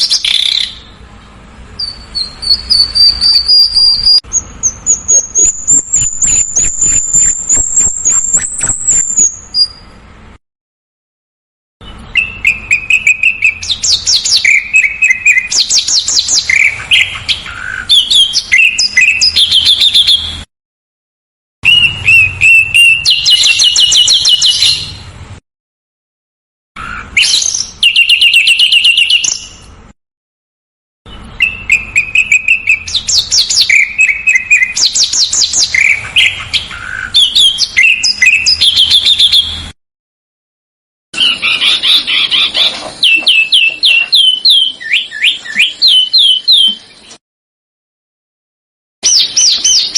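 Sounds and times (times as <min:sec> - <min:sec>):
songbird trills and whistles: 0:00.0 - 0:00.9, 0:01.8 - 0:09.9, 0:11.8 - 0:20.4, 0:21.6 - 0:25.1, 0:26.8 - 0:29.7, 0:31.1 - 0:39.7, 0:41.2 - 0:47.2, 0:49.0 - 0:49.9.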